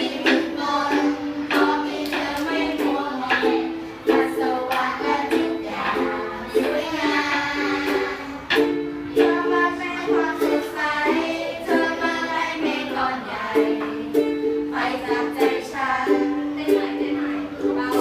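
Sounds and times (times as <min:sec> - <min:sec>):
ukulele strumming chords: 0:00.0 - 0:18.0.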